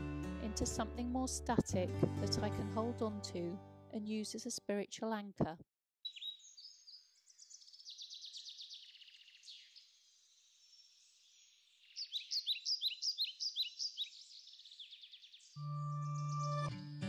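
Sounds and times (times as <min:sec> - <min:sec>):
songbirds chirping and trilling: 0:06.1 - 0:16.7.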